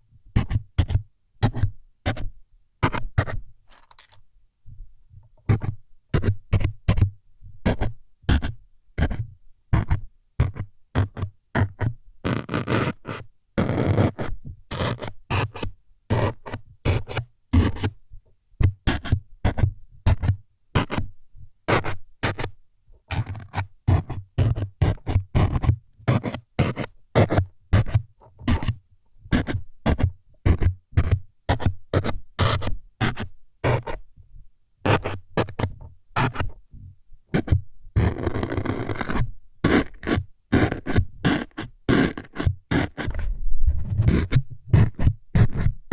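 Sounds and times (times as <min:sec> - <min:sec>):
scraping on microphone: 0:42.9 - 0:45.8.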